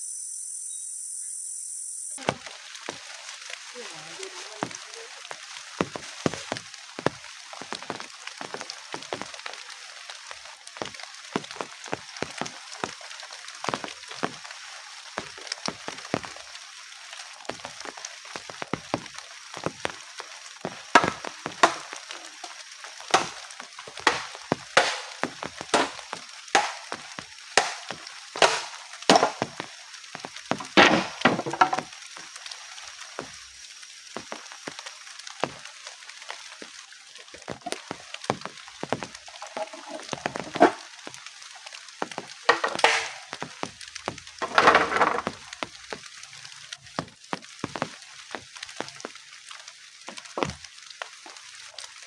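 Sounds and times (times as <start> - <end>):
wood chopping strokes: 20.6 - 31.9, 37.5 - 41.1, 42.0 - 46.1.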